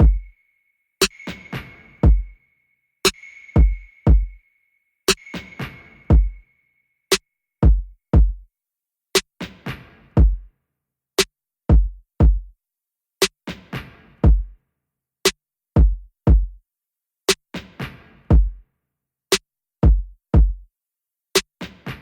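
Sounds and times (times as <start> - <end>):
electronic music with drum-machine beat: 0.0 - 0.4, 1.0 - 2.4, 3.1 - 4.4, 5.1 - 6.5.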